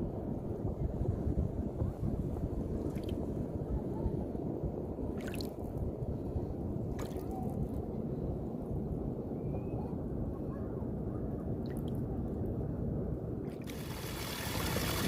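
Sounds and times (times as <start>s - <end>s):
wind rumbling on microphone: 0.0s - 15.0s
water splashes: 2.8s - 3.2s, 5.2s - 5.6s, 6.9s - 7.5s, 13.5s - 15.0s
sea water washing along shore: 13.5s - 15.0s.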